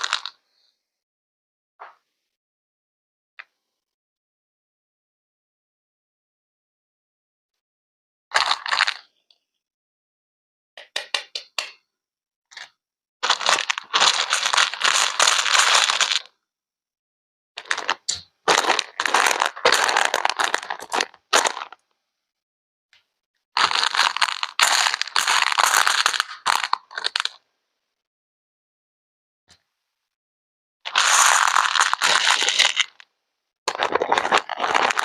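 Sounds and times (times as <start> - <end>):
brittle material crunching: 13.2 - 16.3, 17.6 - 21.8, 23.6 - 27.4, 30.9 - 33.0, 33.7 - 35.0.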